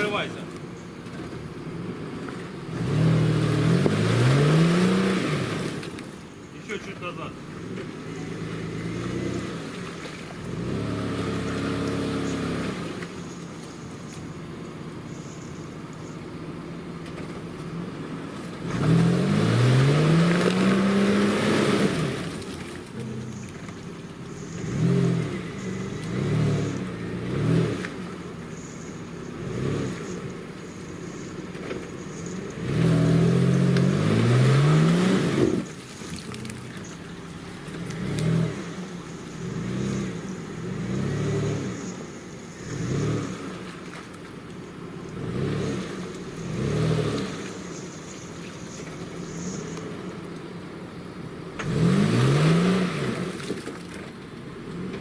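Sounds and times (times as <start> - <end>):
engine revving hard: 2.7 - 5.8, 10.4 - 13.0, 18.6 - 22.4, 24.6 - 28.0, 29.3 - 30.2, 32.6 - 35.7, 39.4 - 41.9, 42.6 - 43.6, 45.2 - 47.6, 51.6 - 53.4.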